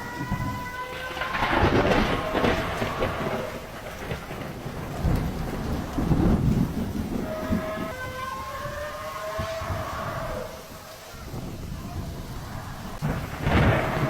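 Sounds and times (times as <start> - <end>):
heavy rain: 0.0 - 14.0
thunder rumbling: 0.0 - 14.0
wind: 0.0 - 14.0.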